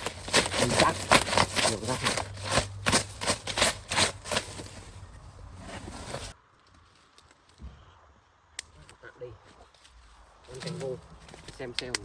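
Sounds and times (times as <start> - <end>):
dry leaves rustling and scraping: 0.0 - 7.5.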